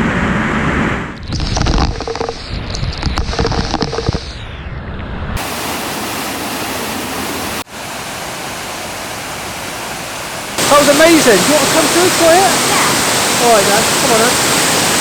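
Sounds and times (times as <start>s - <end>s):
microphone knocks and rumbles: 1.3s - 4.3s
waterfall rushing: 5.4s - 15.0s.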